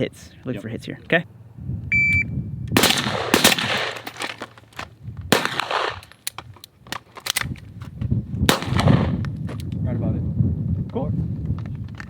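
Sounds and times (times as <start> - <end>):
gunshots: 2.8 - 4.5, 5.3 - 6.2, 8.5 - 9.2.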